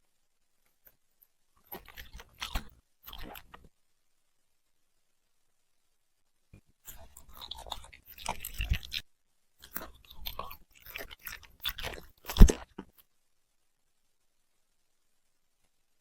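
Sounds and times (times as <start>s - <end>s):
puppy chewing crunchy food: 1.6s - 3.7s, 6.8s - 9.0s, 9.6s - 13.0s.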